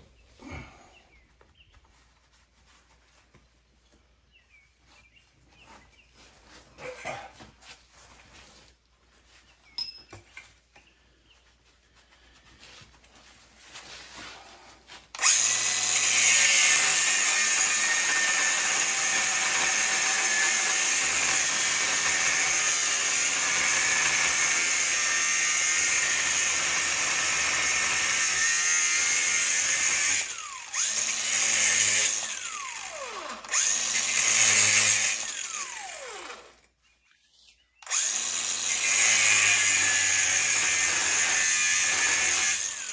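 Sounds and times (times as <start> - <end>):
power tool running: 15.2 - 36.7, 37.8 - 42.9.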